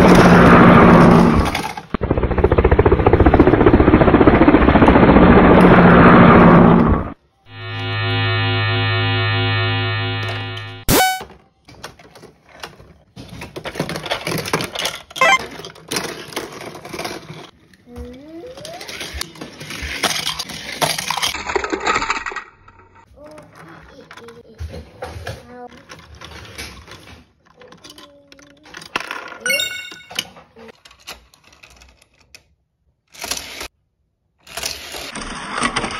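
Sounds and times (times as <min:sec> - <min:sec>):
toy vehicles clattering on plastic track: 0:01.4 - 0:01.9, 0:11.4 - 0:29.5, 0:30.1 - 0:33.7, 0:34.4 - 0:35.9.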